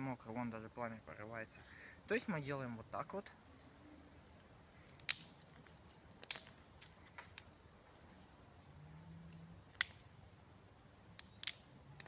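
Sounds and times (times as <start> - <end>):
wet wood cracking in campfire: 4.8 - 7.5.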